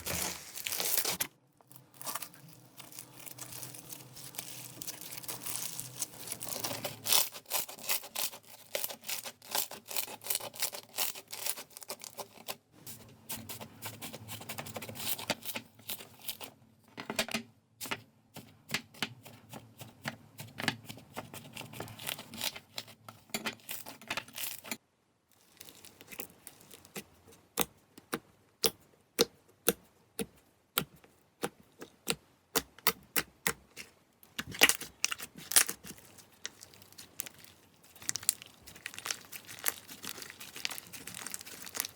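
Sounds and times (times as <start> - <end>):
slime squeezed by hand crackling: 36.5 - 41.9.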